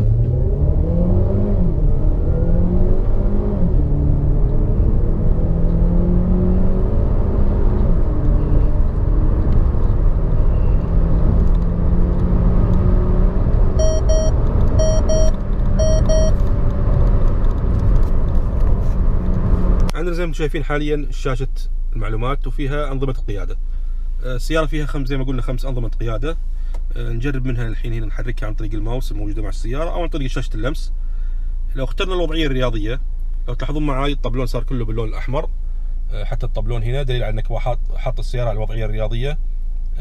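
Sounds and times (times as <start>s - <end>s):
car engine accelerating hard: 0.0s - 20.0s
car chime beeps: 13.8s - 16.4s.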